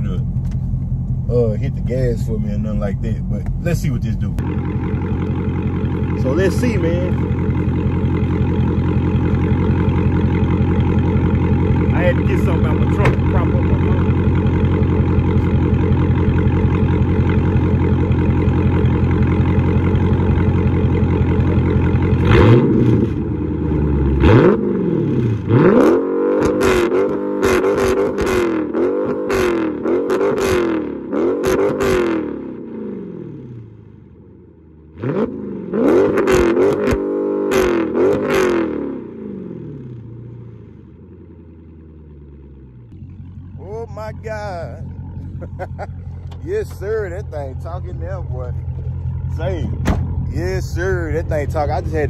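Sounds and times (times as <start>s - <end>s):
engine idling and revving: 0.0s - 52.0s.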